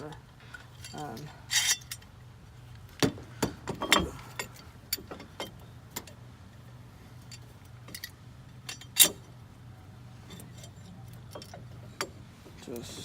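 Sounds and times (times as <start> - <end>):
metal tools clinking and knocking: 0.6 - 2.1, 3.7 - 6.2, 7.2 - 9.4, 10.2 - 13.0.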